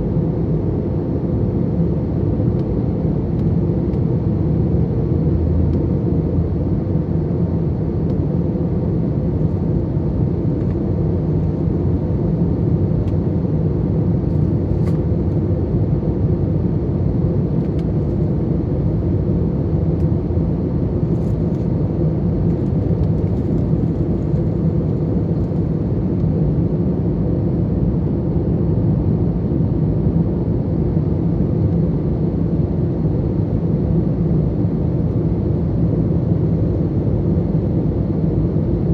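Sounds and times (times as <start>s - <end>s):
jet engine cabin drone: 0.0s - 38.9s.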